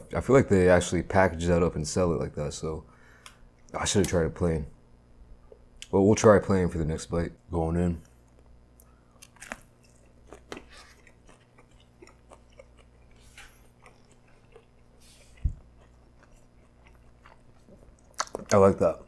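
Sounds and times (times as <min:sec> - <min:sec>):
chewing with crackly clicks: 0:08.0 - 0:19.0
biting into crispy food: 0:09.2 - 0:18.7.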